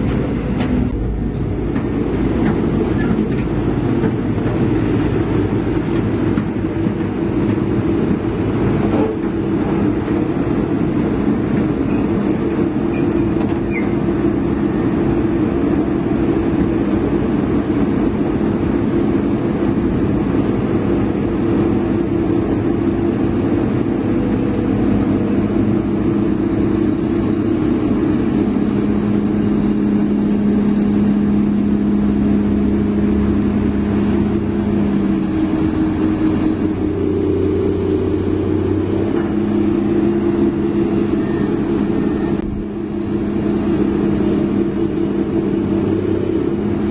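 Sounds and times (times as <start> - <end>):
heavy diesel engine running: 0.0 - 46.9.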